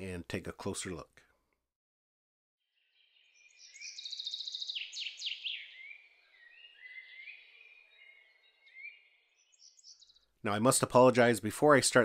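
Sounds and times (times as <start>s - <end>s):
songbirds singing: 2.6s - 11.3s.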